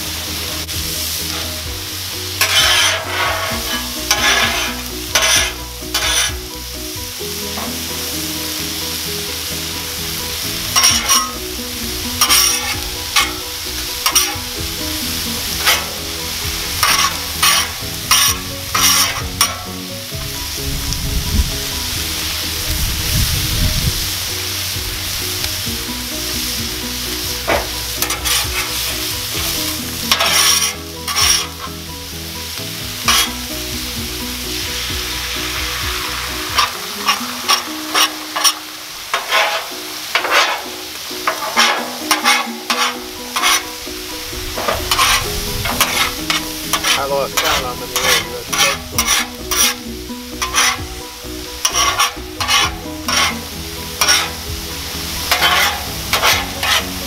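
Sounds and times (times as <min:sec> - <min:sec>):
food sizzling on a griddle: 0:00.0 - 0:57.0
metal spatulas scraping and clacking: 0:02.4 - 0:06.5, 0:10.7 - 0:11.4, 0:12.1 - 0:19.9, 0:27.4 - 0:31.8, 0:33.0 - 0:33.5, 0:36.5 - 0:43.9, 0:44.5 - 0:50.9, 0:51.6 - 0:54.5, 0:55.2 - 0:57.0.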